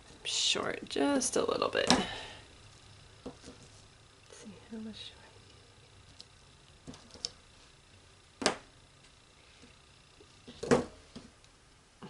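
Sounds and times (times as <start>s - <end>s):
faint handling sounds: 1.8s - 8.0s.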